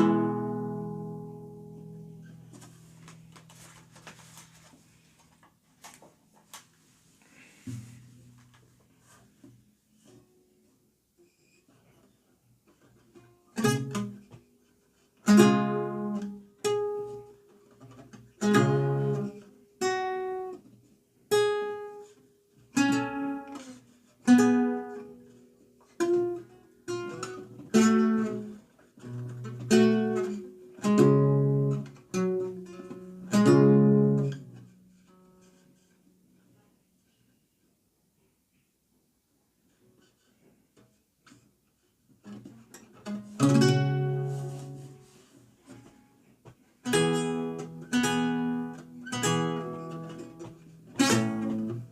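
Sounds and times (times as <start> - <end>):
solo lute plucked chords: 0.0 - 2.6, 18.4 - 20.5, 29.1 - 34.9, 43.2 - 45.0.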